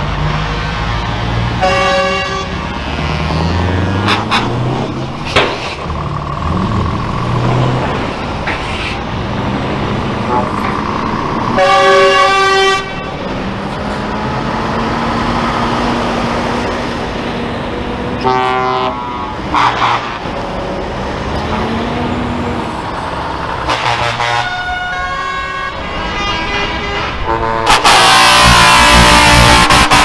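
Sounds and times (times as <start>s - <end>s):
truck engines passing: 0.0s - 30.0s
truck horn blasts: 1.4s - 5.6s, 9.9s - 20.6s, 21.3s - 30.0s.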